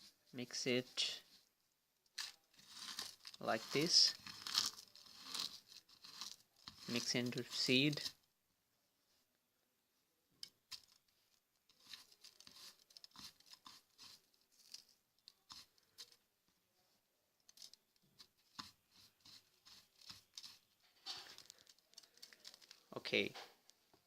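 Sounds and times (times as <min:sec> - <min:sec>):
seeds and shells rustling: 0:02.2 - 0:08.1, 0:11.7 - 0:16.2, 0:18.9 - 0:22.9.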